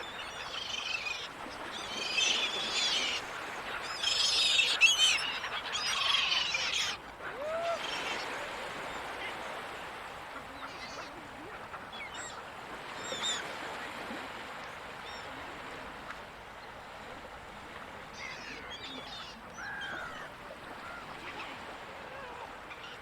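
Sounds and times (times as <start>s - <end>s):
gulls calling: 0.2s - 9.7s, 18.2s - 23.0s
ocean surf: 1.3s - 23.0s.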